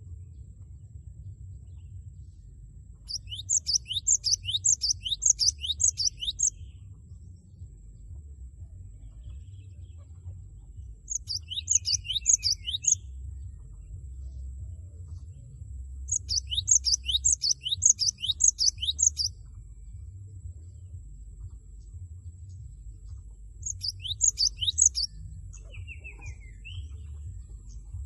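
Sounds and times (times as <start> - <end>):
bird singing rapid high notes: 3.1 - 6.6, 11.1 - 13.2, 16.1 - 19.3, 23.6 - 27.9.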